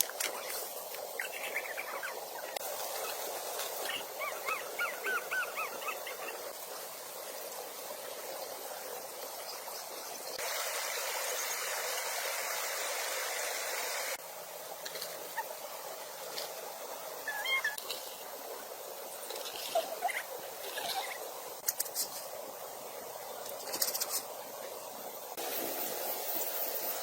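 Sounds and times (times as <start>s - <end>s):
rain hissing: 0.0s - 27.0s
small animal chirping calls: 1.2s - 3.2s, 3.8s - 6.4s, 17.2s - 17.8s, 19.3s - 21.3s.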